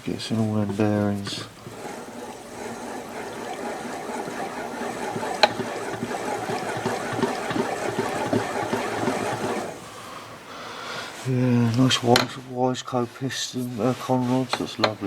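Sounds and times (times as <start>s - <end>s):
small irregular clicks: 0.0s - 10.3s
oil trickling: 0.0s - 11.2s.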